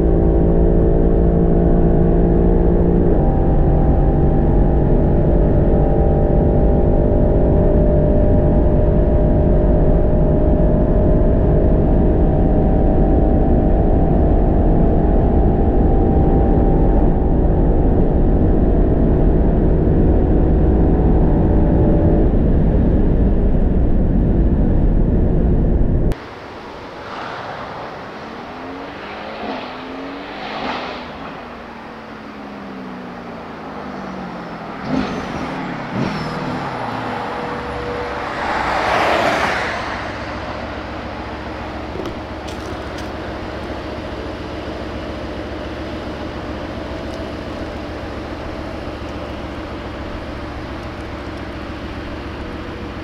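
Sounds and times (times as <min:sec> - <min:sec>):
car engine: 0:00.0 - 0:53.0
loud rush of noise: 0:26.1 - 0:33.6, 0:34.8 - 0:44.9.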